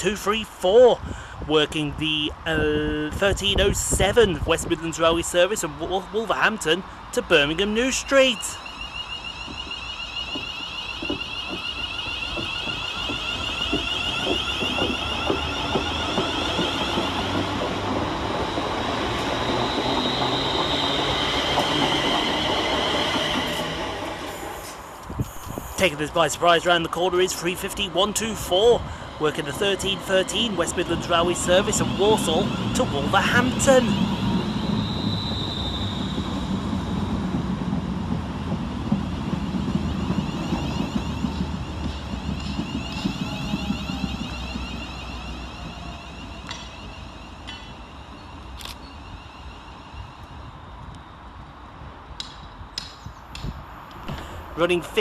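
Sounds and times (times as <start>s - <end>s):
low train rumble: 0.0s - 55.0s
electric train whine: 2.2s - 55.0s
wheels clicking on rails: 3.1s - 55.0s
thin high tone: 7.3s - 14.3s.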